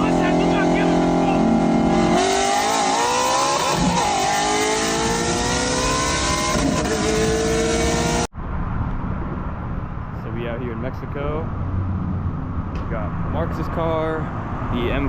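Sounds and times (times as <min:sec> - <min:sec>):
car engine accelerating hard: 0:00.0 - 0:08.3.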